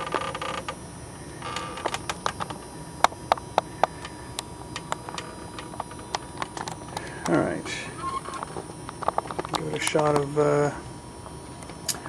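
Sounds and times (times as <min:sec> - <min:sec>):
sharp irregular clicks and taps: 0:01.8 - 0:07.4.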